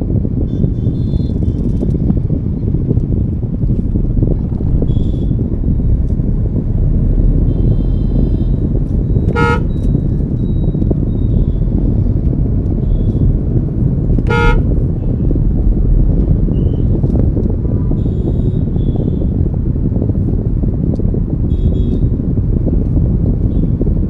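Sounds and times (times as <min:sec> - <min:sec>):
car road and engine rumble: 0:00.0 - 0:24.0
vehicle horn honks: 0:09.2 - 0:10.0, 0:14.2 - 0:15.1, 0:18.0 - 0:19.3, 0:21.5 - 0:22.0.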